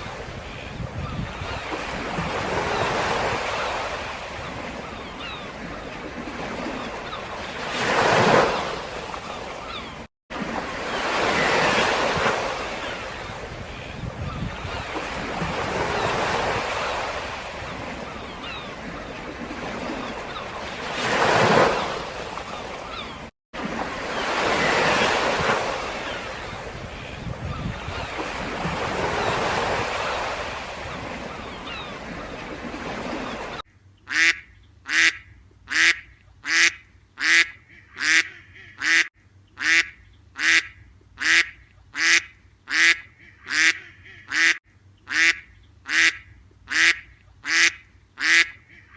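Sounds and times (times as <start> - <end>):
waterfowl calls: 0.0 - 10.1, 10.8 - 23.3, 24.0 - 48.9
waves washing in: 0.0 - 33.6.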